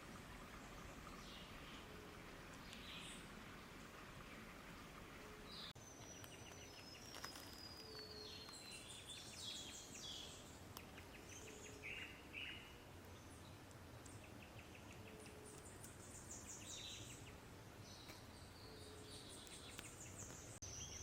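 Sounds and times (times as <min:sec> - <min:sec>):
steady background hiss: 0:00.0 - 0:21.0
songbirds whistling and chirping: 0:05.4 - 0:13.4.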